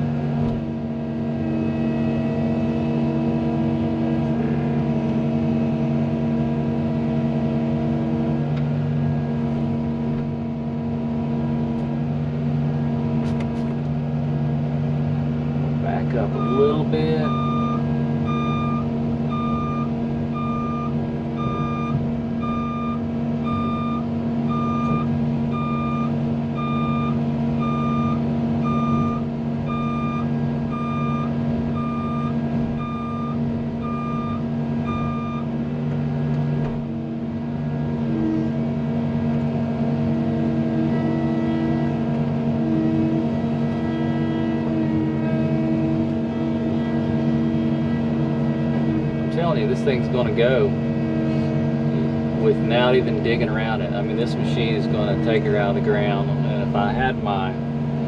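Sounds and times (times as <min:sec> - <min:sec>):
diesel engine under load: 0:00.0 - 0:58.0
wavering higher whine: 0:15.9 - 0:58.0
travel alarm beeping: 0:16.4 - 0:35.5.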